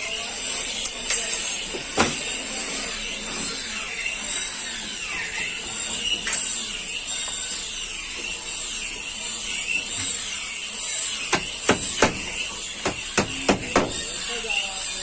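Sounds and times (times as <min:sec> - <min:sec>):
tools striking metal: 0:11.3 - 0:14.2.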